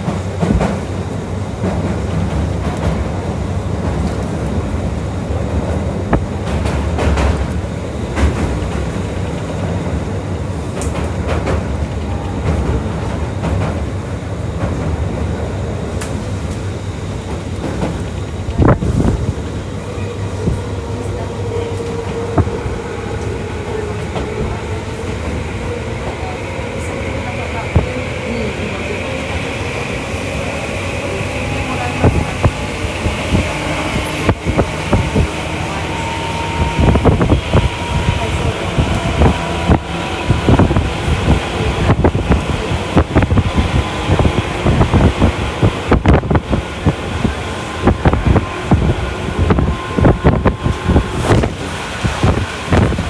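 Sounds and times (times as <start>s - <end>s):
train low rumble: 0.0s - 53.0s.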